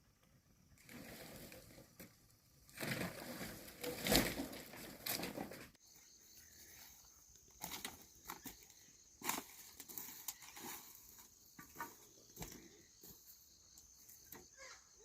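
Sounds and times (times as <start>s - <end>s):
rustling and crunching: 0.8s - 5.8s, 7.5s - 13.2s.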